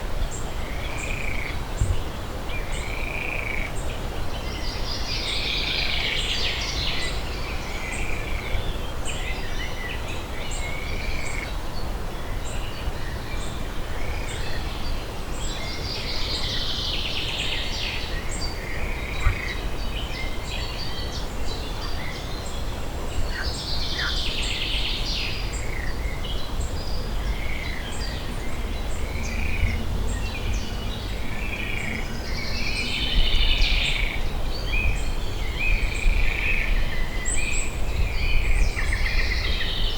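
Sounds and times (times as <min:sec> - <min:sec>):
low background rumble: 0:26.0 - 0:36.2.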